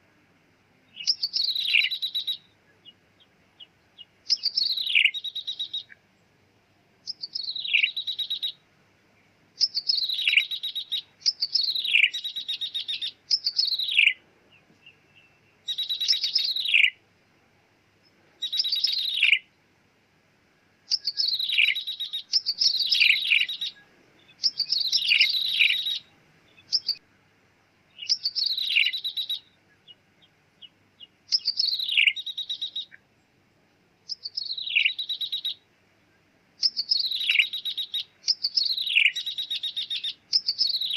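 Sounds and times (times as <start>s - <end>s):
bird buzzy trill call: 24.4s - 27.0s.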